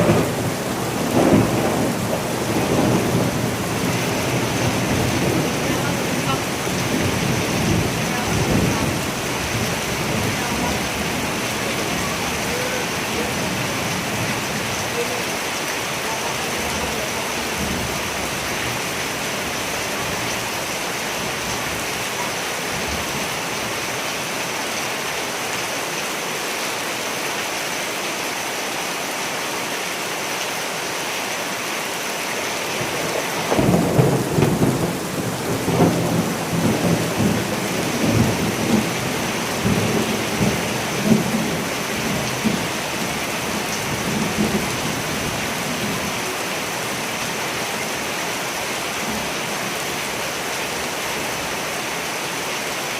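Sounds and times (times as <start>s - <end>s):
rolling thunder: 0.0s - 12.7s, 32.8s - 43.2s
steady rain: 0.0s - 52.9s.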